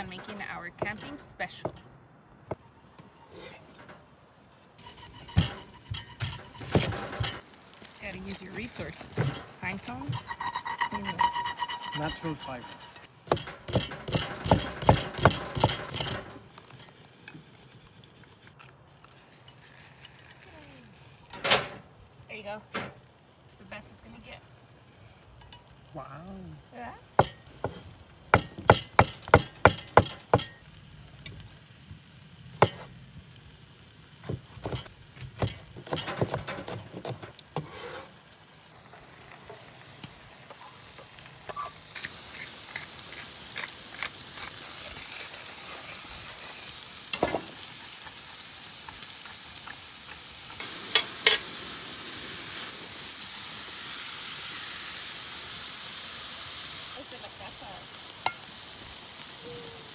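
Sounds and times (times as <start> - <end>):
food sizzling in hot pan: 4.6 - 16.8, 23.5 - 59.9
utensils clinking on cookware: 4.8 - 7.5, 8.3 - 16.4, 50.0 - 51.6.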